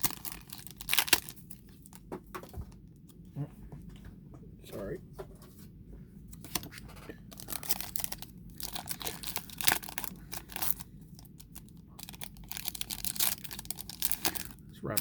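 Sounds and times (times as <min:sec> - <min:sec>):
foil wrapper tearing and crinkling: 0:00.0 - 0:02.0, 0:07.3 - 0:15.0.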